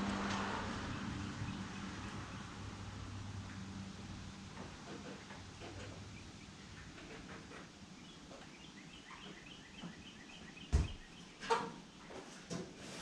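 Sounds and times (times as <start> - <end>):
loud thump: 10.7 - 11.0.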